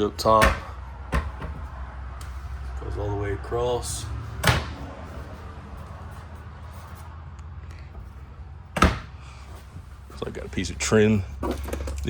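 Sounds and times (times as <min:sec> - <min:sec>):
cabinet doors shutting: 0:04.4 - 0:04.8, 0:08.8 - 0:09.1.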